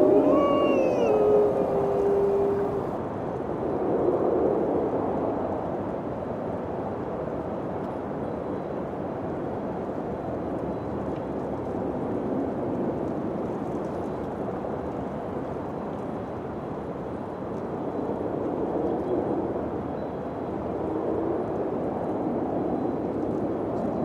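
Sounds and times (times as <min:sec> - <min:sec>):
wind blowing: 0:00.0 - 0:03.0.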